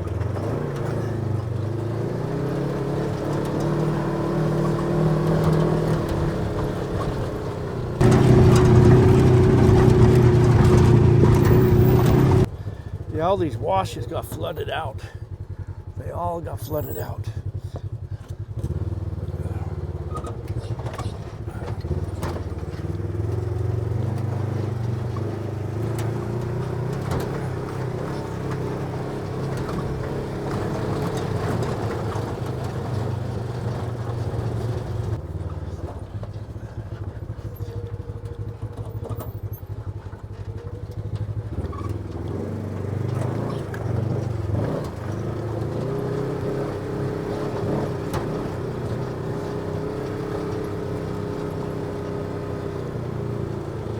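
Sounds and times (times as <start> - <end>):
off-road vehicle engine running: 0.0 - 53.9
knocks and rattles: 4.6 - 12.5.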